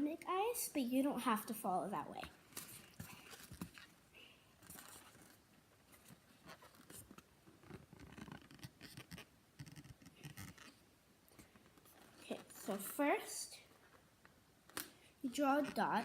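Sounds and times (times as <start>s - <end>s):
rubbing and scratching on balloon: 4.6s - 10.8s, 15.3s - 16.0s.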